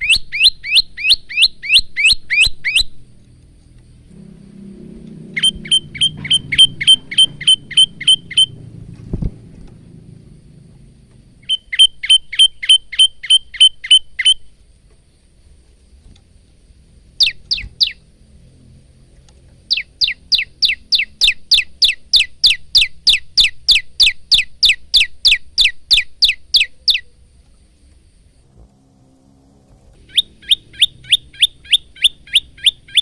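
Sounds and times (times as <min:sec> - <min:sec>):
songbird singing sharp notes: 0:00.0 - 0:03.0, 0:05.0 - 0:08.8, 0:11.4 - 0:14.6, 0:17.2 - 0:18.1, 0:19.6 - 0:27.2, 0:29.0 - 0:33.0.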